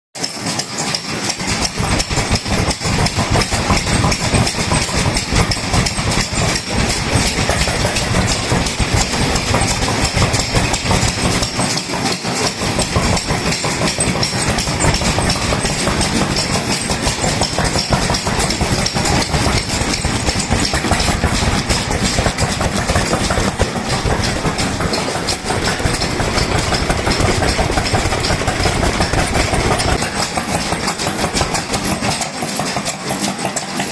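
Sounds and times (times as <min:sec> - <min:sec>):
stationary engine chugging: 0:00.2 - 0:33.9.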